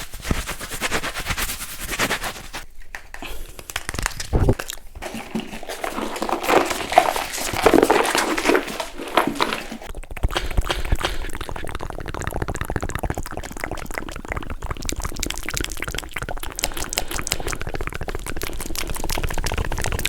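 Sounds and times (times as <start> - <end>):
rustling: 0.0 - 9.9
quick irregular clicks: 10.1 - 11.6.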